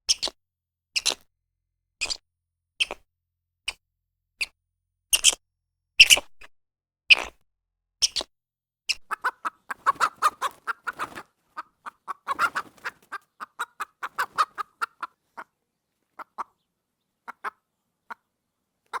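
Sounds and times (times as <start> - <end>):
fowl clucking: 9.0 - 15.5, 16.2 - 16.6, 17.2 - 18.3.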